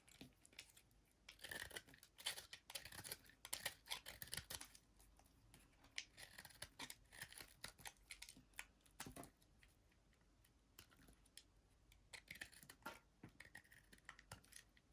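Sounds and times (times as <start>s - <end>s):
knife cutting through soap: 0.0s - 9.6s, 10.8s - 14.9s.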